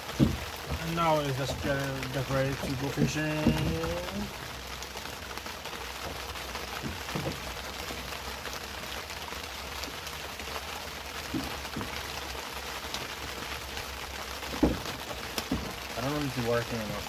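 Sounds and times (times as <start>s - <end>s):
heavy rain: 0.0s - 17.0s
faint knocks: 0.1s - 4.2s, 14.5s - 15.9s.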